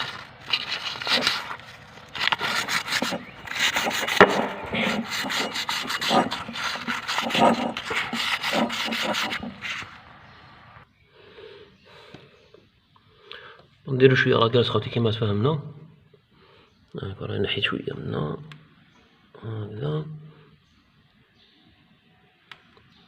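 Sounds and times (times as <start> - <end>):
sandpaper scraping metal: 0.0 - 10.0.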